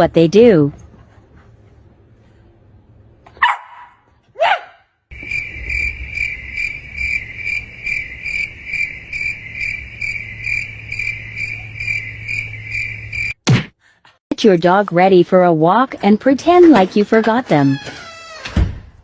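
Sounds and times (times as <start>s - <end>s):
dog barks: 3.4s - 4.9s
cricket chirping: 5.1s - 13.4s
low hum: 5.1s - 13.4s.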